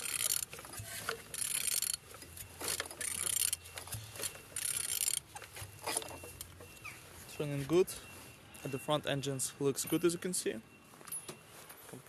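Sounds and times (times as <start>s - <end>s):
ratchet wrench clicking: 0.0s - 6.5s.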